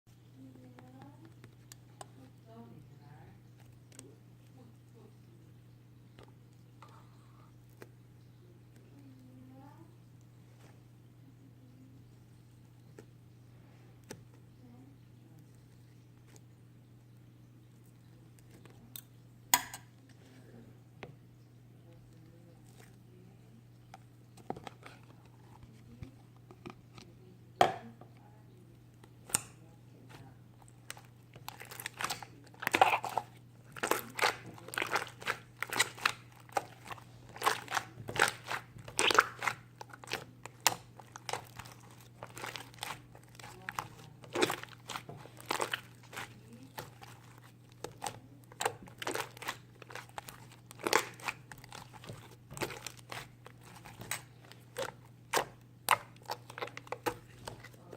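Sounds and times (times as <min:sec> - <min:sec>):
faint low hum: 0:00.1 - 0:57.9
crinkling and crunching handling noises: 0:21.8 - 0:57.9.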